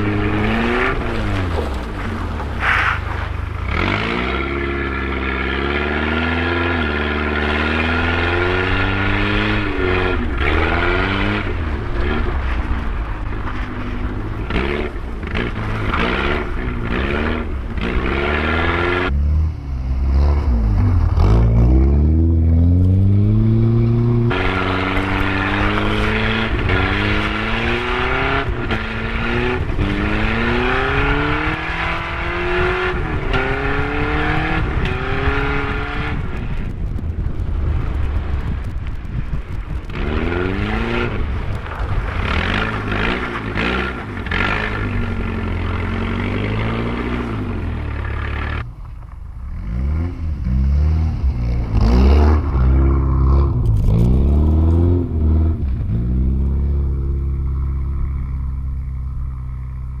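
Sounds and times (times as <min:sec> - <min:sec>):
car engine revving: 0:00.0 - 0:37.0, 0:49.5 - 1:00.0.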